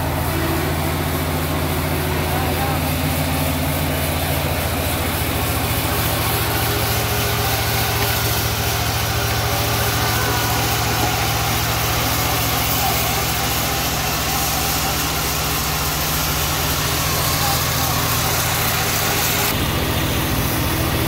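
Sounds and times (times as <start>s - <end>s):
sawmill engine running: 0.0s - 21.0s.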